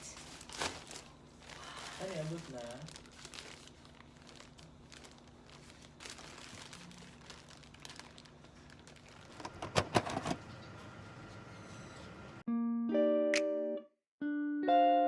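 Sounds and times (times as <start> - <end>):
crinkling and rustling: 0.0 - 10.4.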